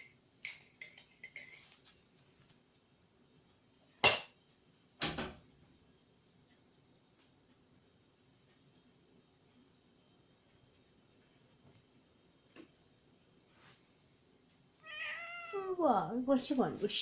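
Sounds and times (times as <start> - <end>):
crockery and cutlery clattering: 0.0 - 1.8.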